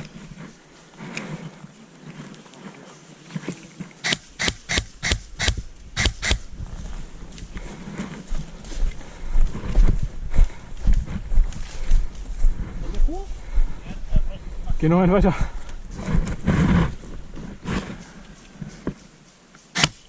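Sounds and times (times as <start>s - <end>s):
airsoft gun shots: 4.0s - 6.4s, 19.8s - 20.0s.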